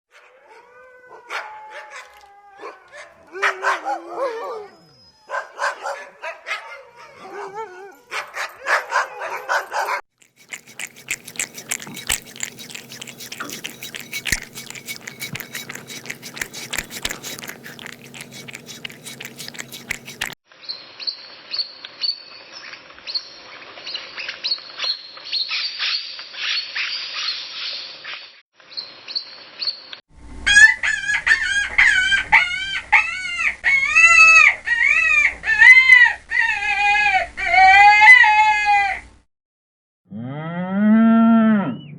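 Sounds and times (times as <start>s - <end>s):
dog sounds: 1.3s - 20.4s
animal sounds: 9.8s - 20.4s.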